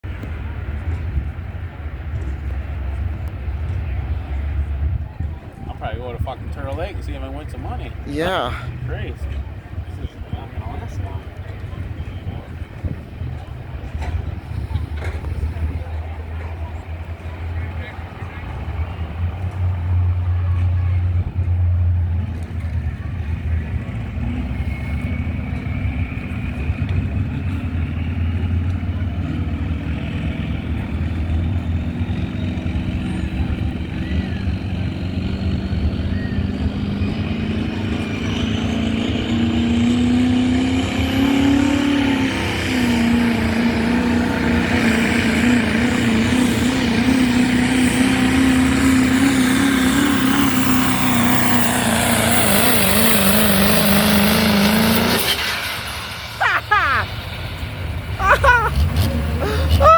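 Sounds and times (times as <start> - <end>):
truck engine running under load: 0.1 - 56.4.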